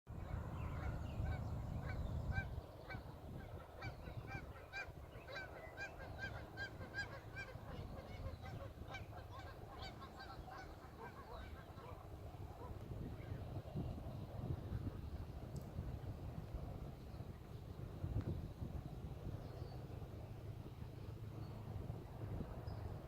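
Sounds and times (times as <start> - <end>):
geese honking: 0.8 - 12.0.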